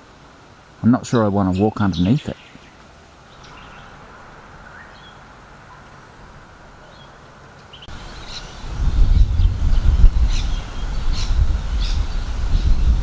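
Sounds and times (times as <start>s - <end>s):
wind buffeting microphone: 7.9s - 13.0s.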